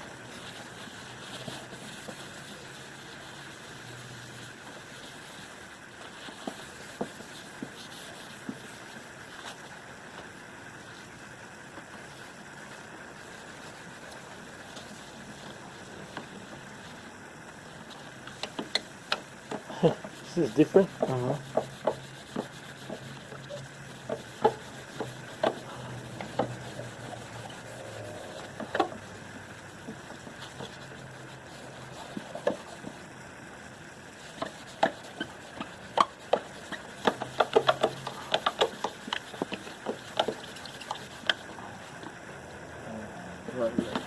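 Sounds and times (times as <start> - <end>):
paper towel rubbing plastic: 0.0 - 33.2, 34.0 - 42.2, 43.6 - 44.0
handling knocks and clicks: 36.0 - 41.4.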